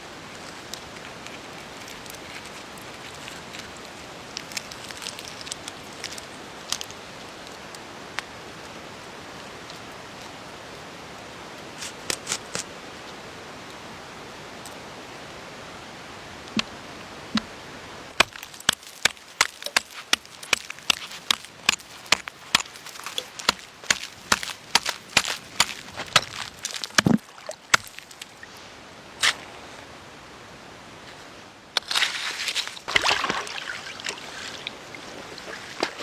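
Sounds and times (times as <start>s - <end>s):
steady rain hiss: 0.0s - 32.8s.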